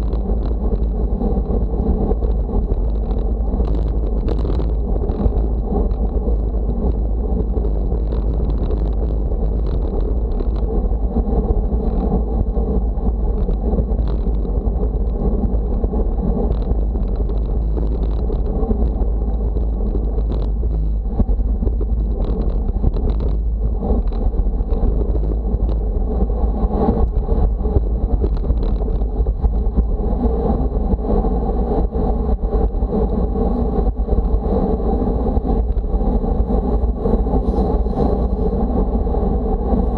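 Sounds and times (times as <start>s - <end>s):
small ticks and knocks: 0.0s - 0.9s, 2.2s - 6.1s, 6.8s - 10.7s, 13.4s - 15.6s, 16.4s - 23.4s, 24.0s - 25.8s, 27.4s - 29.8s
wind buffeting microphone: 0.0s - 39.9s.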